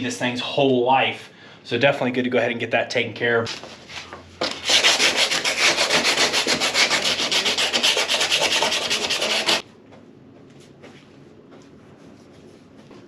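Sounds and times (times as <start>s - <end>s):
rapid sanding strokes: 4.4s - 9.6s.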